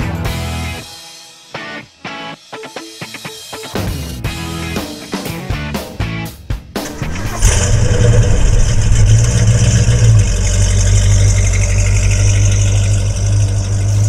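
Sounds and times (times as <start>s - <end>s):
music: 0.0s - 7.4s
car engine starting and idling: 6.8s - 14.0s.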